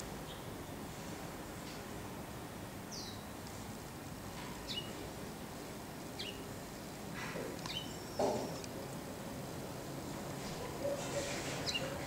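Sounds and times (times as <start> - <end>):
small birds chirping: 0.0 - 0.9, 2.8 - 3.4, 4.5 - 5.1, 6.1 - 8.8, 10.5 - 12.0
faint outdoor background hiss: 0.0 - 12.0.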